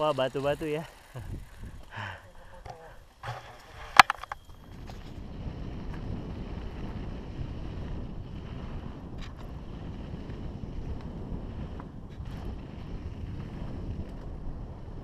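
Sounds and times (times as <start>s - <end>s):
wind rushing over microphone: 0.0s - 15.0s
faint bike clicks: 13.6s - 14.4s.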